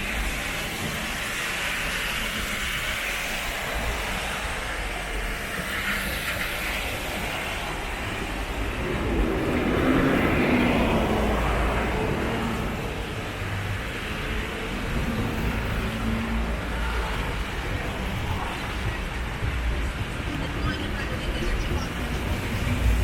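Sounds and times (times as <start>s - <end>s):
traffic on wet road: 0.0s - 23.0s
vehicle engine passing: 8.3s - 23.0s.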